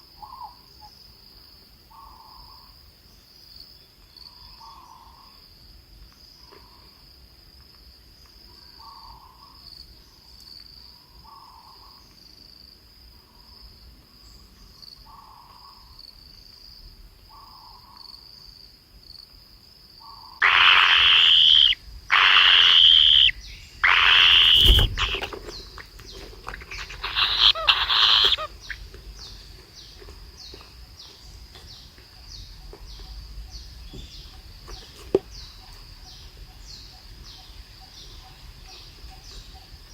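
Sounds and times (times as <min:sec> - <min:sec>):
high insect trill: 0:17.6 - 0:39.9
harsh bird calls: 0:20.0 - 0:30.6
rapid chattering bird calls: 0:20.4 - 0:30.5.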